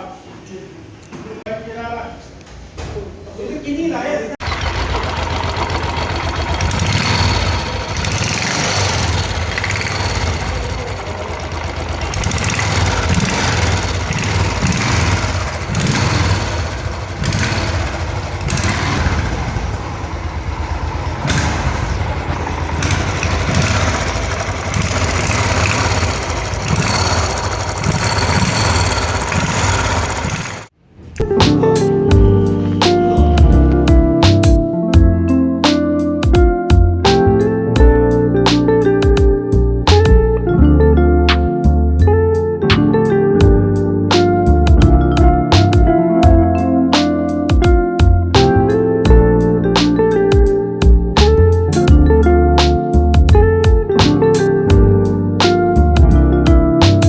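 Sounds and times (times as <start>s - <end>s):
engine tappet noise: 4.4s - 34.6s
motorcycle engine running: 4.4s - 35.2s, 36.2s - 38.2s, 38.8s - 40.4s, 43.4s - 43.8s, 44.4s - 46.7s, 47.5s - 57.0s.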